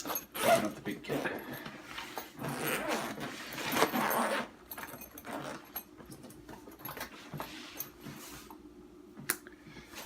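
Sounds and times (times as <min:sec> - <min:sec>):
backpack fabric rustling: 0:00.0 - 0:05.7.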